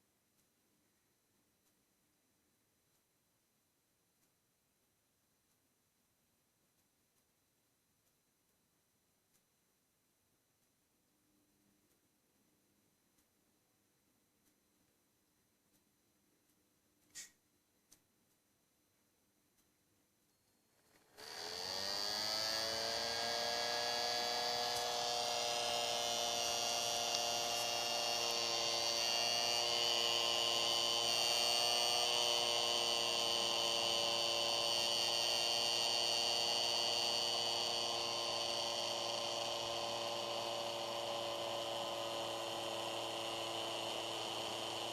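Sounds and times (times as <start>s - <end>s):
cooling fan whining: 20.9s - 44.9s.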